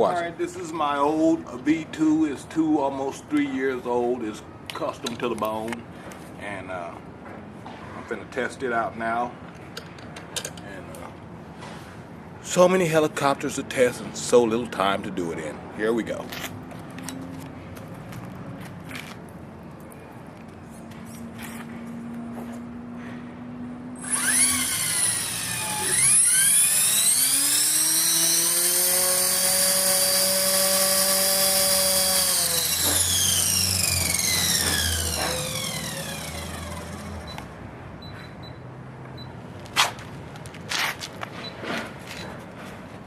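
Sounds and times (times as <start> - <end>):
model helicopter motor whine: 24.0 - 37.5.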